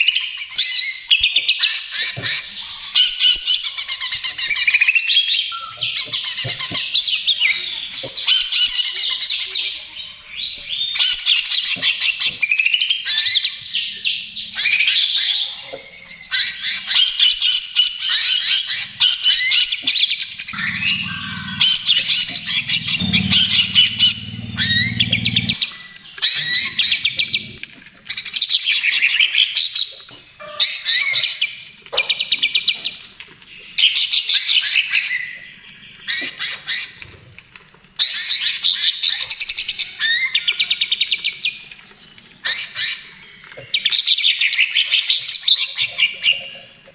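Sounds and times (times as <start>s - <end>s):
bird rapid chirping song: 18.0s - 27.7s.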